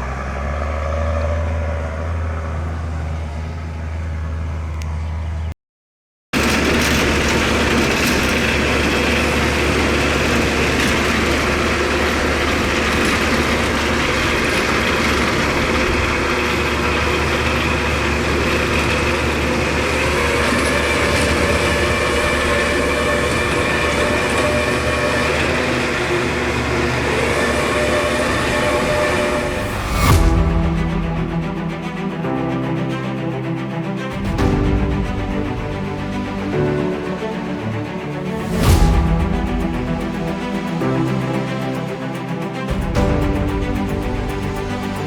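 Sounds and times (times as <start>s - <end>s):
diesel engine under load: 0.0s - 5.5s, 6.4s - 45.0s
high mechanical whine: 6.4s - 32.8s.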